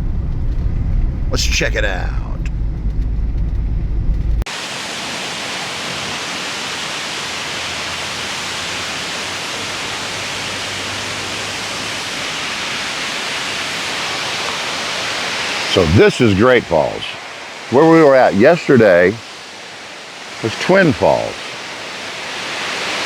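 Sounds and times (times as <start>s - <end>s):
low vehicle rumble: 0.0s - 4.5s
waterfall rushing over rocks: 4.5s - 23.0s.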